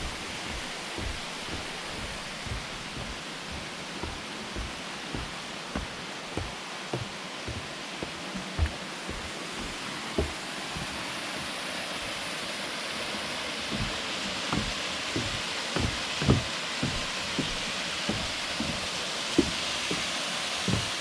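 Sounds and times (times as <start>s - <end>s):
short low thumps: 0.0s - 10.9s, 13.7s - 20.0s, 20.7s - 21.0s.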